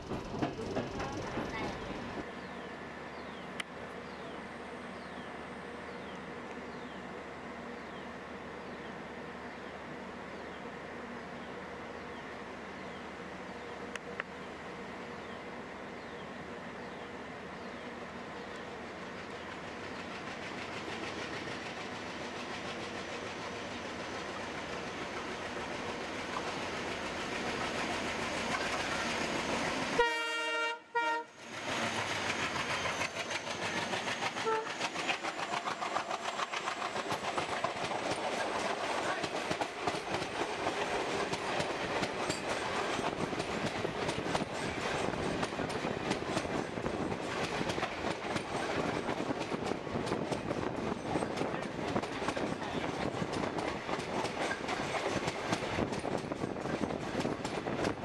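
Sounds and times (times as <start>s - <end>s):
train wheels clattering over rails: 0.0s - 2.3s, 18.8s - 30.0s, 31.4s - 58.0s
passenger train approaching: 0.0s - 58.0s
locomotive horn blast: 30.0s - 31.4s, 34.4s - 34.8s.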